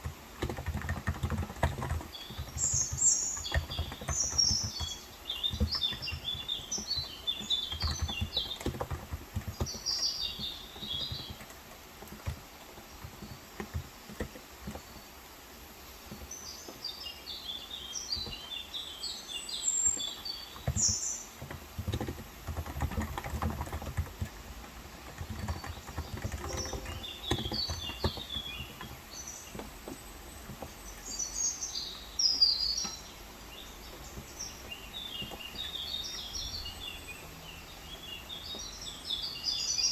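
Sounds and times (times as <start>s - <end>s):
soft keyboard typing: 0.0s - 15.0s, 19.9s - 36.6s
birds chirping: 0.0s - 39.9s.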